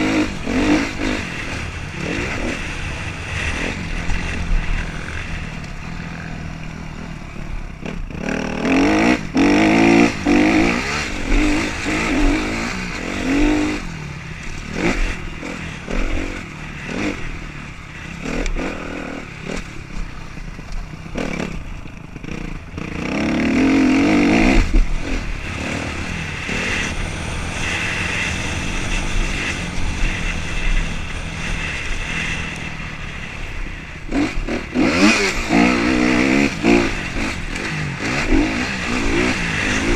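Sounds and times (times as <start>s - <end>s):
motocross bikes revving: 0.0s - 39.9s.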